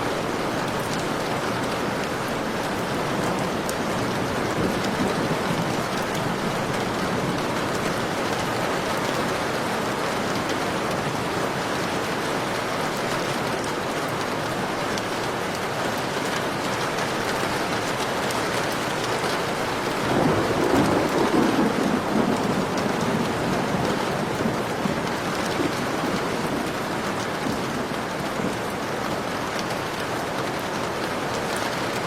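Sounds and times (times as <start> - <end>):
heavy rain falling: 0.0 - 32.0
thunder rumbling: 19.5 - 28.7.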